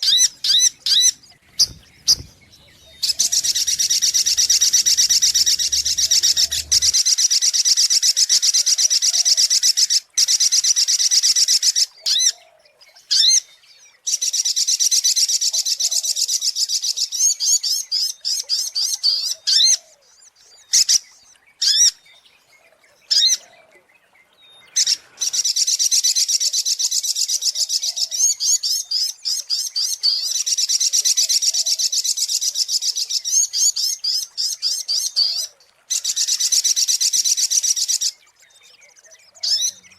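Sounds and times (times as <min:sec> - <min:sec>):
bird high-pitched trills: 0:00.0 - 0:07.0
bird short calls: 0:00.0 - 0:07.0.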